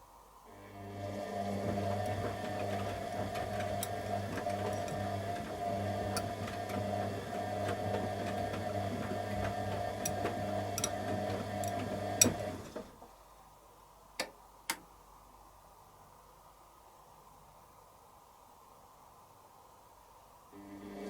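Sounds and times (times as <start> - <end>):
washing machine motor hum: 0.5 - 13.0, 20.5 - 21.0.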